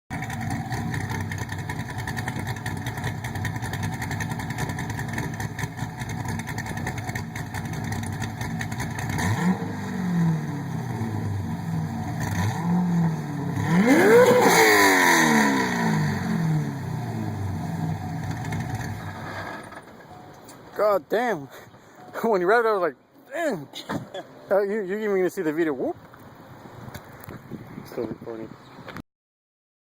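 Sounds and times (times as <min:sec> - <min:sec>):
engine idling and revving: 0:00.1 - 0:20.0.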